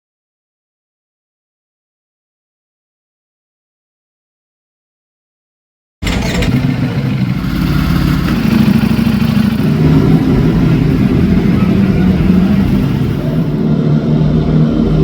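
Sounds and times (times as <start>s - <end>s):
motorcycle engine droning: 6.0s - 15.0s.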